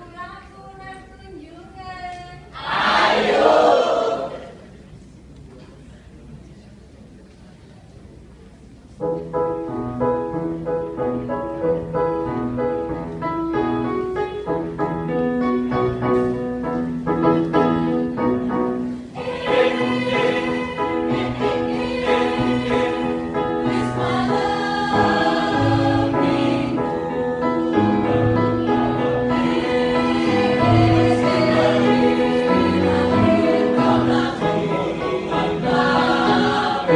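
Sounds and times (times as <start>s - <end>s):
mixed choir singing: 2.6s - 4.6s, 19.1s - 36.9s
piano accompaniment: 9.0s - 36.9s.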